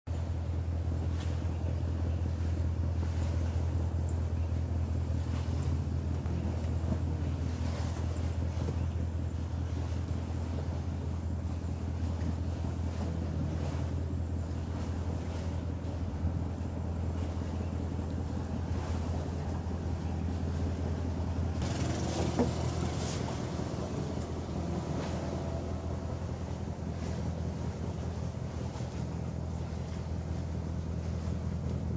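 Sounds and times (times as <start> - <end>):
boat engine droning: 0.1 - 31.9
water wash: 0.9 - 31.9
wind or water hiss: 21.4 - 31.9.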